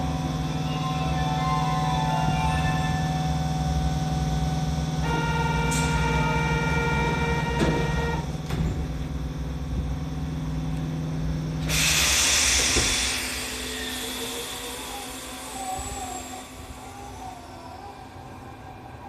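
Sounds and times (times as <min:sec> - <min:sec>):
train electrical hum: 0:00.0 - 0:19.0
compressed air hiss: 0:11.7 - 0:17.2.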